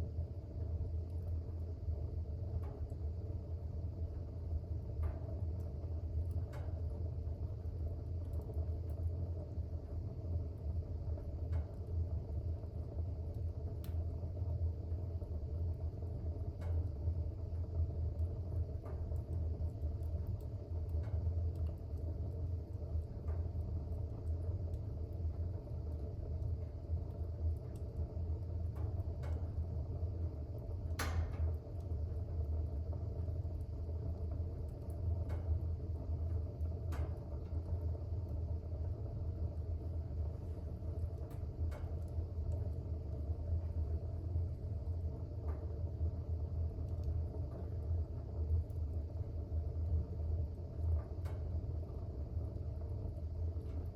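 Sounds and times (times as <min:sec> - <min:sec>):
fire crackling and popping: 0:00.0 - 0:53.9
fire rumbling: 0:00.0 - 0:53.9.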